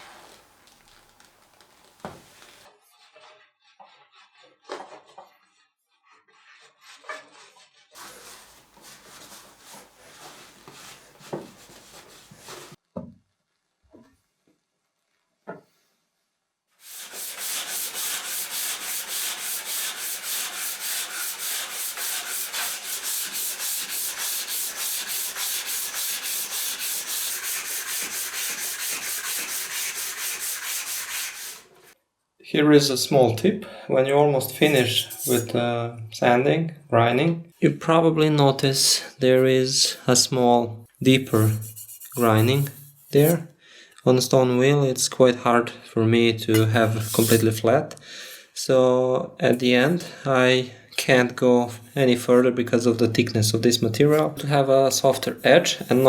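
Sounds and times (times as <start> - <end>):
sandpaper rubbing on blade: 2.0 - 4.7, 5.5 - 11.0, 16.8 - 32.0, 34.6 - 35.5, 41.0 - 43.4, 46.6 - 47.6, 55.0 - 56.0
hiss: 16.8 - 31.7.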